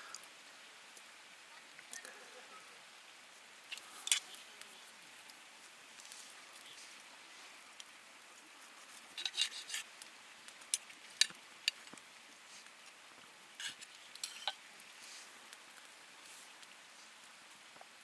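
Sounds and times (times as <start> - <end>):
cookware scraping: 9.2 - 9.9, 13.6 - 14.6.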